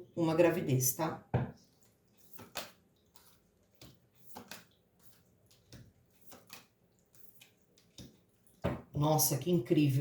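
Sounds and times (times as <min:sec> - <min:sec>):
cards tapping and sliding: 0:02.2 - 0:08.2.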